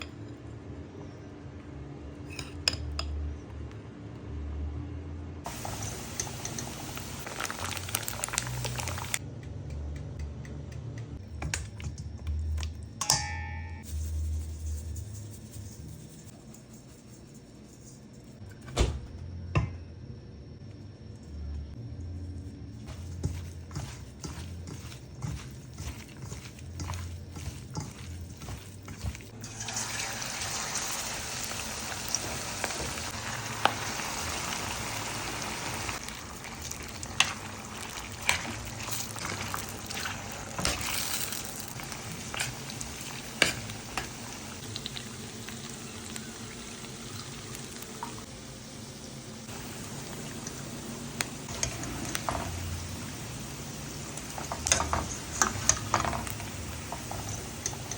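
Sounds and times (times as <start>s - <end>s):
food sizzling in hot oil: 5.5s - 9.2s, 22.9s - 57.9s
utensils clinking: 54.3s - 57.9s.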